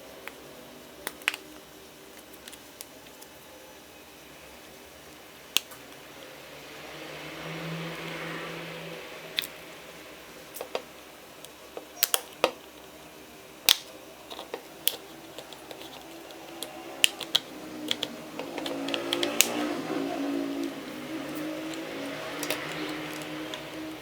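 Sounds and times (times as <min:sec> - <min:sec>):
tool clicks on plastic parts: 0:13.7 - 0:19.6.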